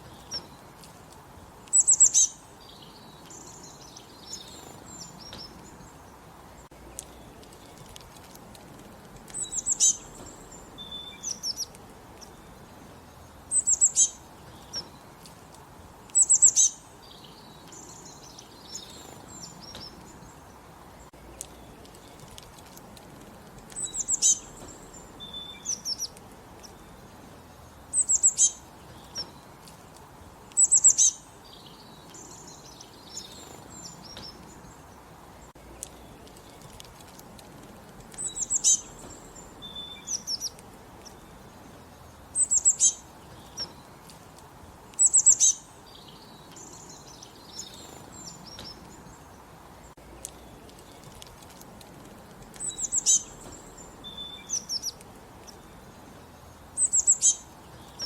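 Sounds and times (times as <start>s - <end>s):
faint background hiss: 0.0s - 58.0s
songbirds chirping: 0.0s - 58.0s.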